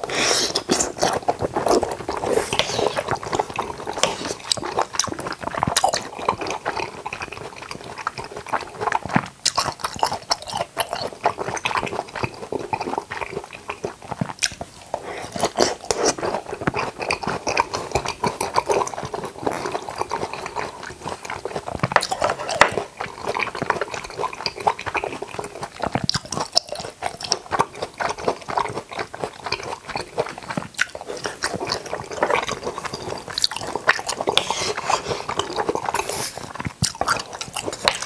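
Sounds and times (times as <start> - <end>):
wet chewing and mouth clicks: 0.0 - 38.0.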